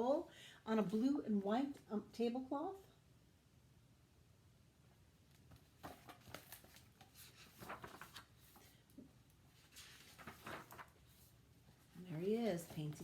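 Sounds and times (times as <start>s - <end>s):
book pages turning: 5.4s - 13.0s.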